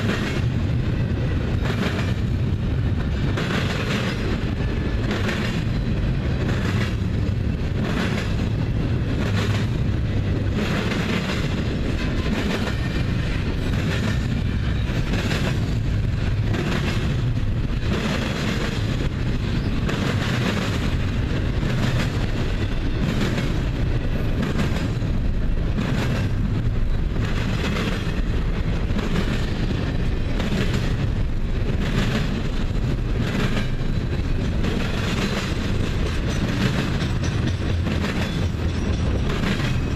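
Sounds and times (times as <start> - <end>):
train rumble: 0.0 - 39.9.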